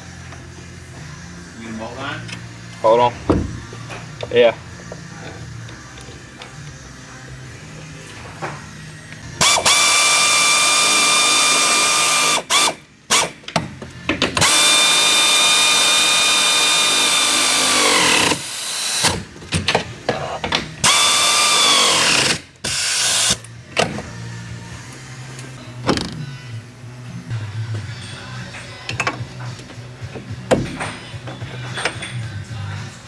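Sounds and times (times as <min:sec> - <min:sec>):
power tool running: 0:09.3 - 0:13.4, 0:14.4 - 0:19.3, 0:20.8 - 0:23.4.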